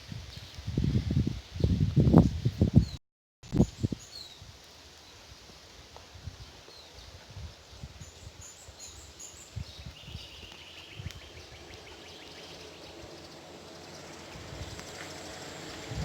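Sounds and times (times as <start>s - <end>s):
outdoor hiss: 3.8s - 16.0s.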